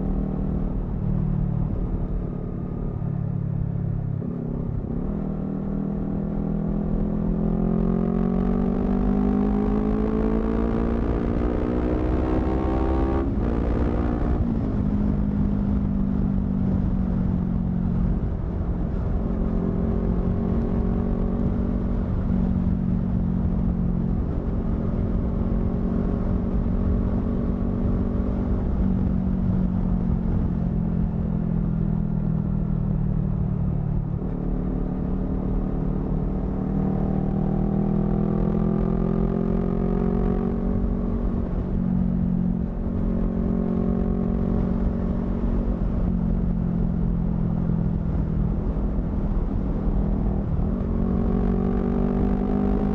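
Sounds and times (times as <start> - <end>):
wind and road noise: 0.0 - 52.9.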